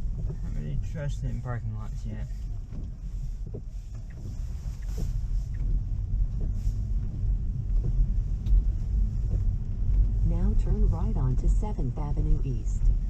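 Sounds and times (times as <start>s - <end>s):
road and tyre rumble in car: 0.0s - 13.0s
faint ticks: 2.4s - 10.2s.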